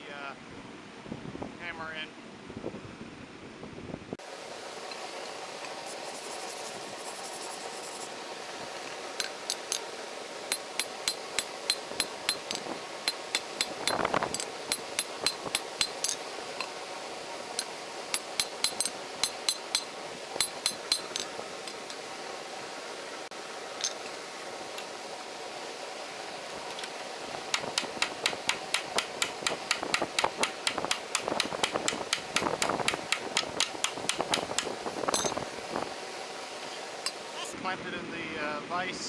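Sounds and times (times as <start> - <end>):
steady background hiss: 4.2 - 39.0
hammer striking steel on anvil: 9.2 - 9.9, 10.5 - 16.7, 17.5 - 22.0, 27.5 - 35.5, 37.0 - 37.5.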